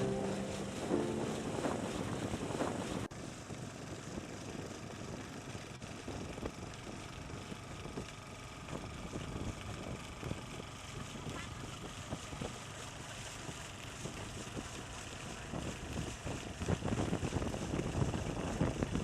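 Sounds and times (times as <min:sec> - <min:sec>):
faint music: 0:00.0 - 0:03.1
motorboat engine and water rush: 0:00.0 - 0:19.0.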